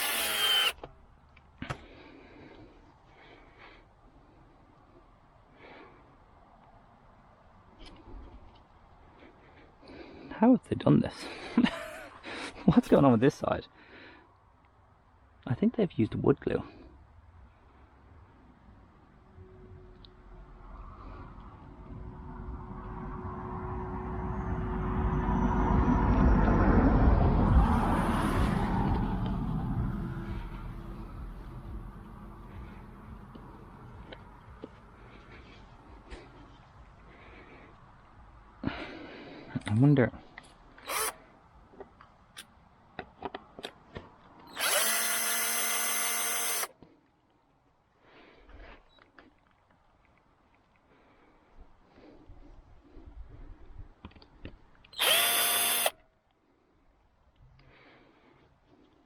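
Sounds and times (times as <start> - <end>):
power drill spinning: 0.0 - 0.9, 40.8 - 41.2, 44.5 - 46.7, 54.9 - 56.0
motor vehicle passing by: 19.3 - 35.1.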